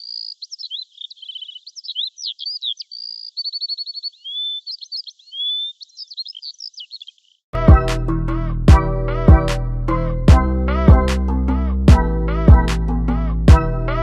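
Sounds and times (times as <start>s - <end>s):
songbirds chirping and trilling: 0.0s - 7.5s.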